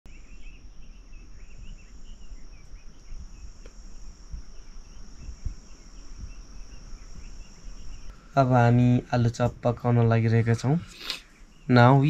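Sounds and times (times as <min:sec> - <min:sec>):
insects trilling: 0:00.1 - 0:12.0
small birds chirping: 0:00.1 - 0:12.0.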